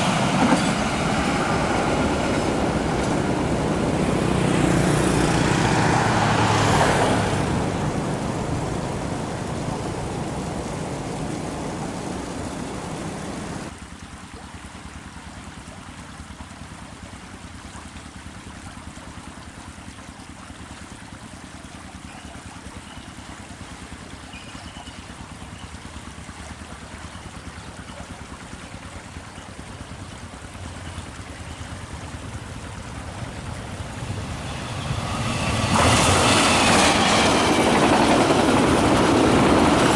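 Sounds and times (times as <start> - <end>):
passing train roaring: 0.0 - 13.7, 29.5 - 39.9
train approaching: 0.0 - 13.7, 28.4 - 39.9.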